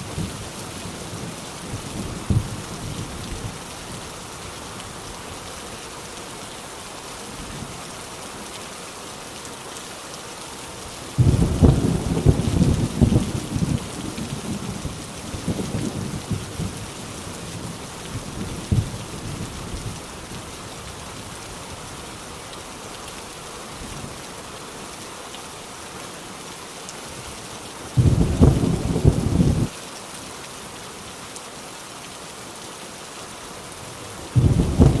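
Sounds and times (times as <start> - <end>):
heavy rain on a tin roof: 0.0 - 35.0
loud thunderclap: 11.2 - 13.8, 28.0 - 29.7, 34.4 - 35.0
thunder rumble: 11.2 - 16.8, 28.0 - 29.7, 34.4 - 35.0.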